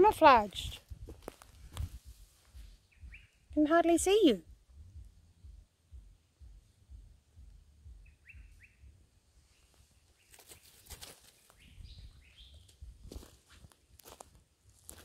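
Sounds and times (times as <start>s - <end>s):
low rumble: 0.2s - 9.5s
small birds chirping: 2.7s - 4.2s, 4.9s - 13.0s.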